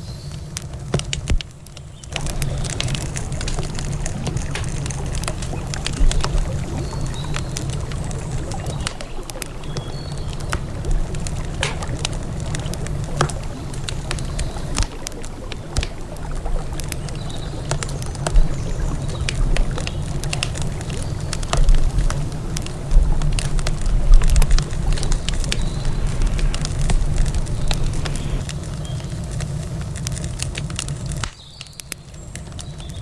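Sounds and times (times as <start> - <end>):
campfire crackling and popping: 0.4 - 33.0
river water flowing: 2.2 - 28.5.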